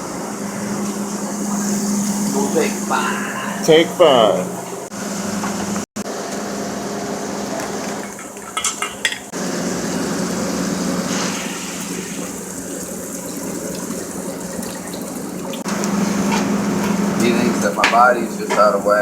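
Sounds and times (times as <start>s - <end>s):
kitchen background noise: 0.5s - 19.0s
dishes and utensils clinking: 7.6s - 9.3s, 17.8s - 18.9s.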